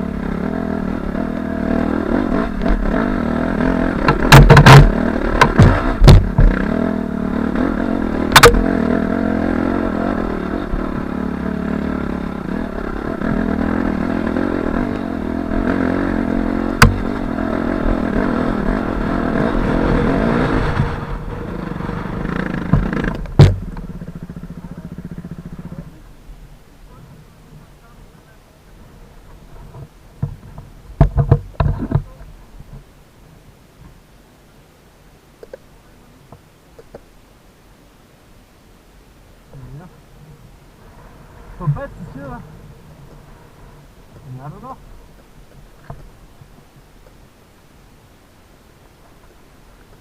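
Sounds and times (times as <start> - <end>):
dirt bike engine running: 0.0 - 26.2, 39.6 - 46.9
sharp knocks and clatter: 4.0 - 6.7, 8.3 - 8.7, 16.8 - 17.1, 22.4 - 23.9, 29.7 - 32.2.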